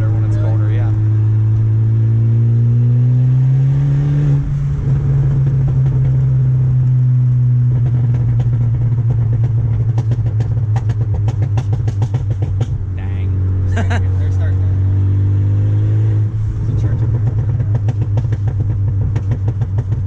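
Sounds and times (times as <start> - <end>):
exhaust pops and crackles: 0.0 - 1.7, 4.2 - 14.6, 16.3 - 20.0
turbocharged car engine pulling hard: 0.0 - 20.0.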